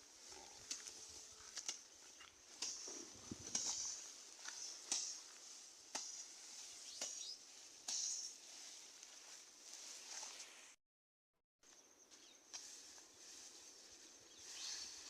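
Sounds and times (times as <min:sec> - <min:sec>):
grass rustling crackles: 0:00.0 - 0:10.8, 0:11.7 - 0:15.0.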